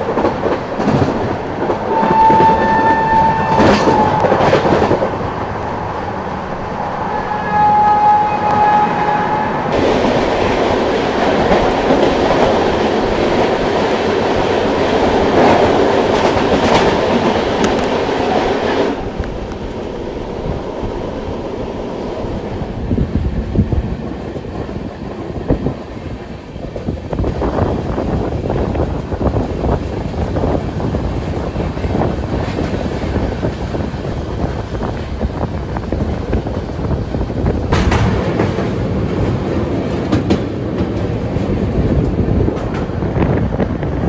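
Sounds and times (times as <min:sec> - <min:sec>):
passing train rushing clatter: 0:00.0 - 0:44.0
wheels rumbling on rails: 0:00.0 - 0:44.0
train horn: 0:01.9 - 0:04.8, 0:06.9 - 0:09.8.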